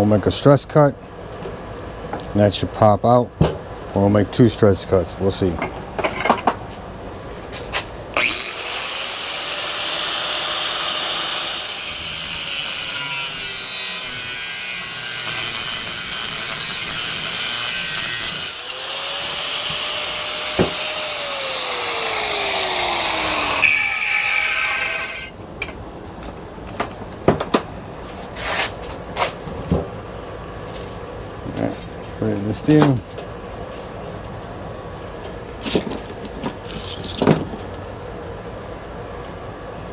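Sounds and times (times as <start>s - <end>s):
power tool cutting metal: 8.2s - 25.3s.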